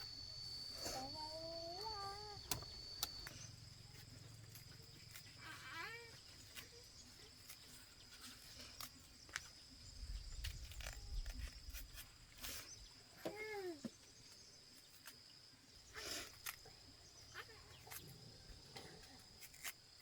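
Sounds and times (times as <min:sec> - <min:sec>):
thin high tone: 0:00.0 - 0:05.8
faint cat meowing: 0:05.4 - 0:06.2.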